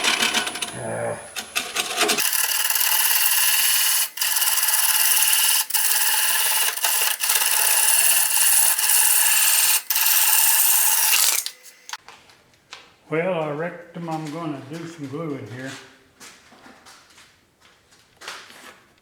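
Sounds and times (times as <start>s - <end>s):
tool rasping on spinning lathe: 0.0s - 12.0s.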